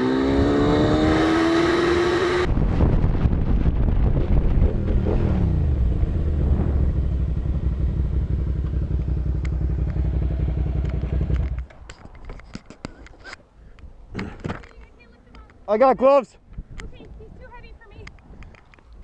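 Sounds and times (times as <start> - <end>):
motorcycle engine running: 3.6 - 11.7.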